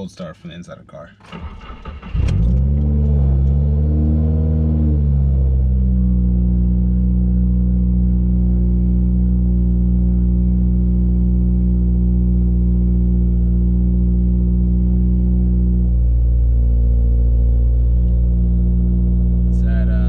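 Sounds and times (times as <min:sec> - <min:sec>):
car engine idling: 0:05.6 - 0:20.0.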